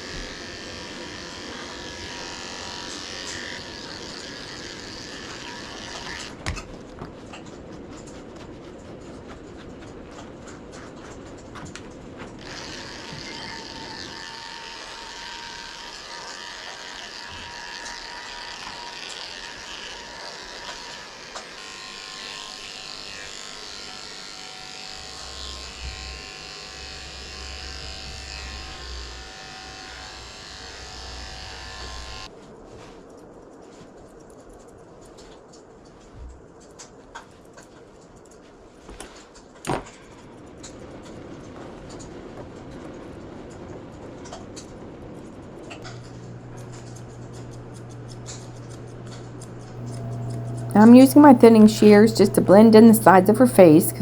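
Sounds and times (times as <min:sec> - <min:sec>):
electric clippers running through fur: 0:00.0 - 0:09.0, 0:10.8 - 0:32.3, 0:45.8 - 0:53.1.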